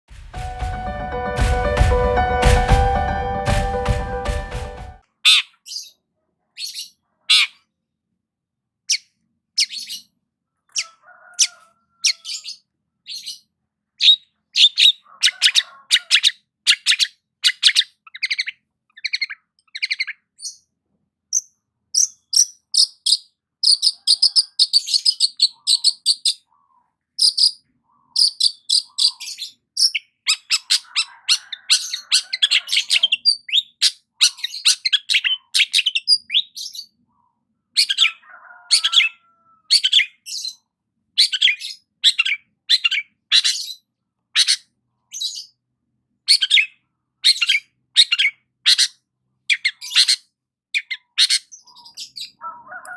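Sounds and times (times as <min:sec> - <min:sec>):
shrike chirping song: 0:00.1 - 0:05.0.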